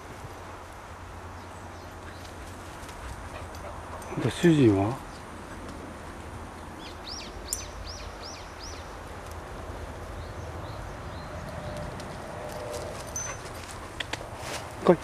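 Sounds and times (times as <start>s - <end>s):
outdoor background noise: 0.0s - 15.0s
small bird chirping: 6.8s - 9.0s.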